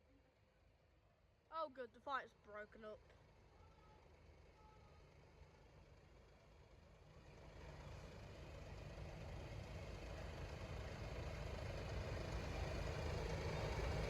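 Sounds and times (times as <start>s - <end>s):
vehicle engine rumble: 7.4s - 14.0s.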